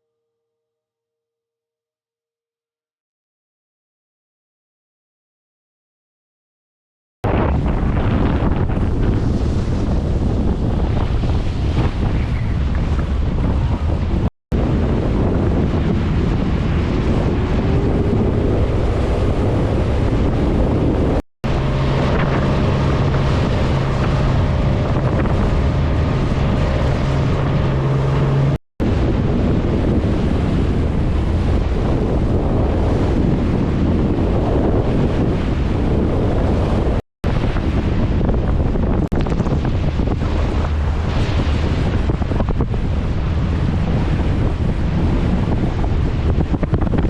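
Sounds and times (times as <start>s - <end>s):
sea noise: 7.2s - 47.0s
wind buffeting microphone: 7.2s - 47.0s
low hum: 7.3s - 33.2s.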